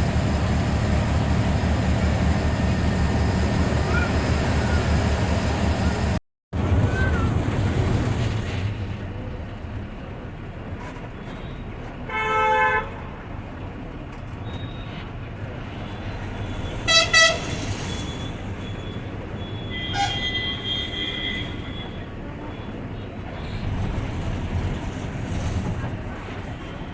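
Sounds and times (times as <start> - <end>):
bus engine and road rumble: 0.0 - 26.9
vehicle horn honks: 16.9 - 17.4.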